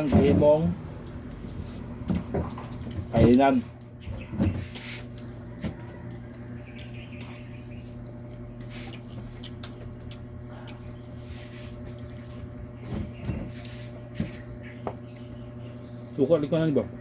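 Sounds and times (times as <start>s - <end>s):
person chewing and lip-smacking: 5.1s - 12.4s.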